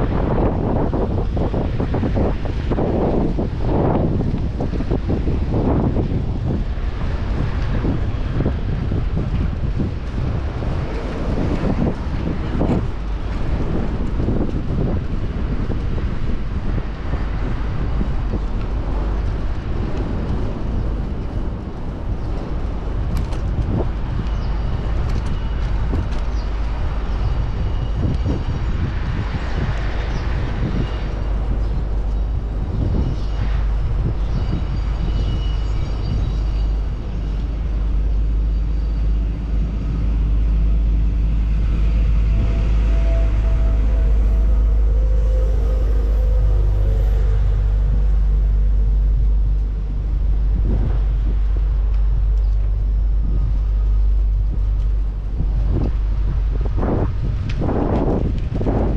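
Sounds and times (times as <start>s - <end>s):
city traffic noise: 0.0s - 58.9s
wind buffeting microphone: 0.0s - 58.9s
faint high tones: 41.5s - 49.0s.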